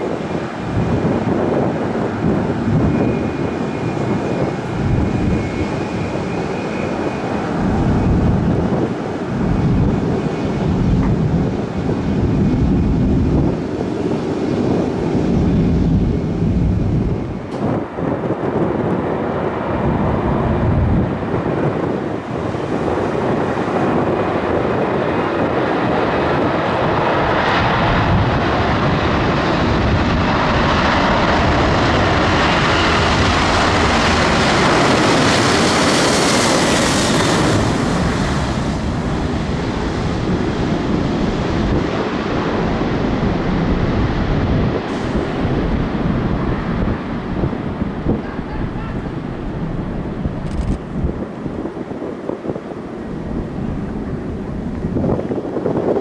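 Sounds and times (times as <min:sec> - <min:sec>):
aircraft passing close by: 0:00.0 - 0:56.0.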